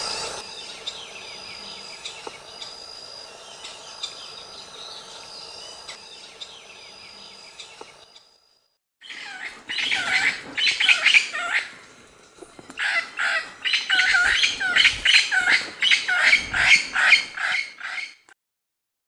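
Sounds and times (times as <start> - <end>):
birds calling: 9.0 - 18.3.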